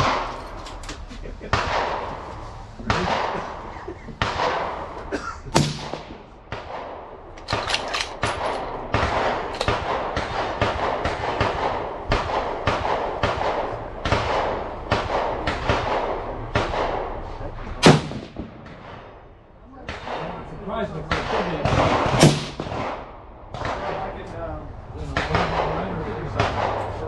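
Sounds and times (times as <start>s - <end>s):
gunshots with echo: 0.0s - 0.5s, 1.4s - 24.2s, 25.0s - 27.0s
sharp loud gunshot: 5.6s - 6.9s, 17.8s - 19.0s, 21.1s - 24.0s.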